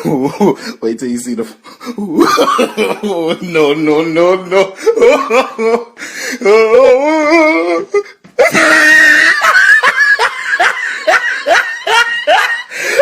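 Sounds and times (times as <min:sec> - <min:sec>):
person laughing hard: 0:01.9 - 0:03.6, 0:04.4 - 0:13.0.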